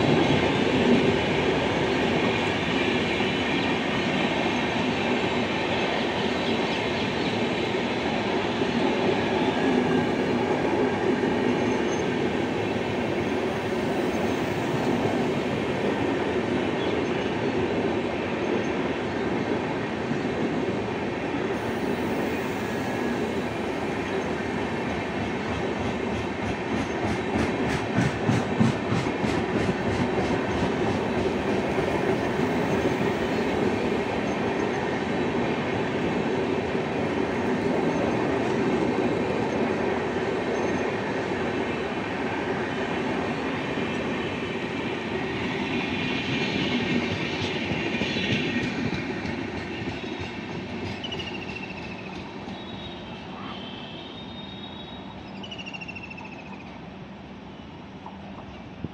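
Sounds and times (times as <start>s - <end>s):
train wheels clattering over rails: 24.8s - 41.0s, 43.3s - 52.8s.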